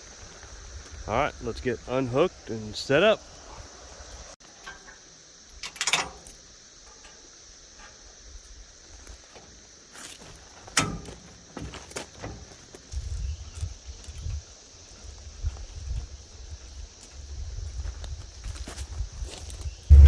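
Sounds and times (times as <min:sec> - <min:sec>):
high-pitched insect drone: 0:00.0 - 0:20.0
metal clanks and clicks: 0:04.5 - 0:08.0, 0:10.7 - 0:11.3.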